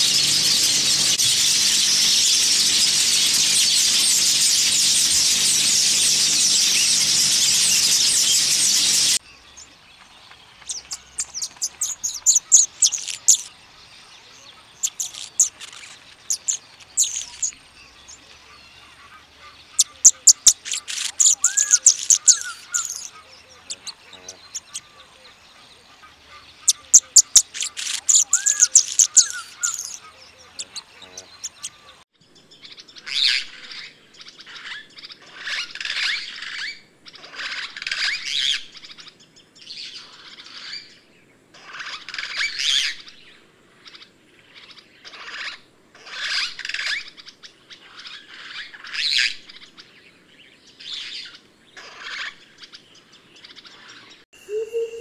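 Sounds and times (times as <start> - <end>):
bird ticking and sizzling song: 0.0 - 18.9, 19.6 - 25.4, 26.3 - 32.0
harsh chattering bird calls: 0.0 - 32.0.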